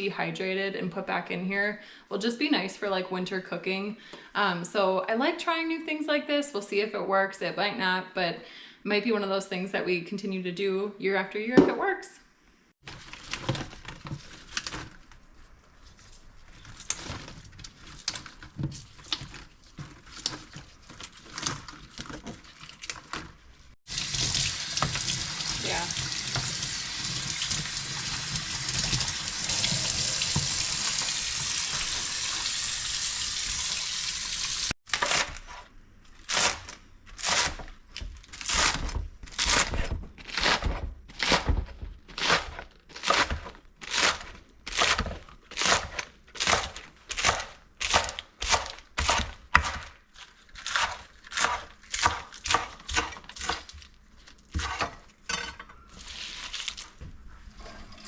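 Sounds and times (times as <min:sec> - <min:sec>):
tap running into sink: 0:24.0 - 0:32.5.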